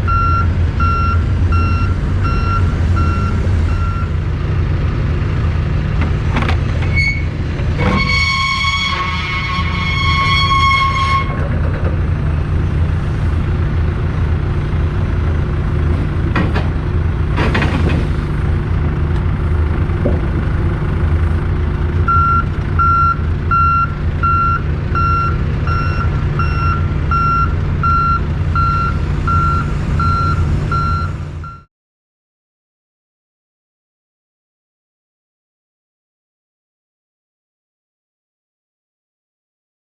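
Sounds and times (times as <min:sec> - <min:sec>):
reversing alarm beeping: 0:00.1 - 0:04.2, 0:22.1 - 0:31.7
train horn: 0:07.9 - 0:11.4
truck engine idling: 0:11.4 - 0:31.6.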